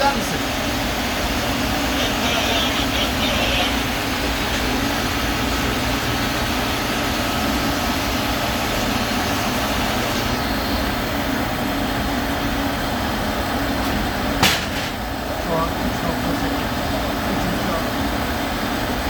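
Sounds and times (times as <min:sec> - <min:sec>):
diesel engine droning: 0:00.0 - 0:19.0
faint high whine: 0:07.6 - 0:12.2.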